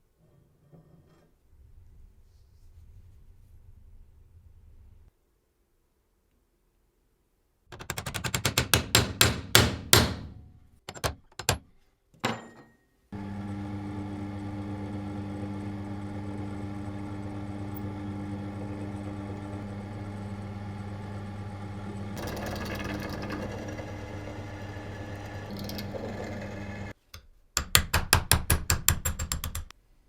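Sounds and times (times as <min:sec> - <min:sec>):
electric motor hum: 0:13.2 - 0:27.0.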